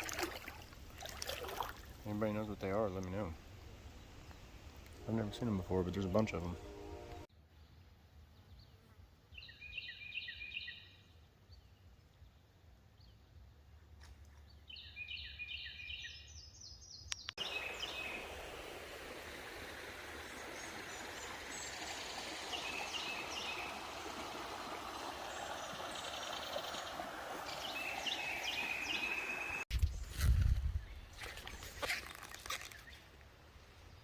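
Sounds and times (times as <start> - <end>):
creek water flowing: 0.0 - 7.3, 17.4 - 29.7
small birds chirping: 14.4 - 18.4, 20.2 - 24.2, 24.8 - 33.2.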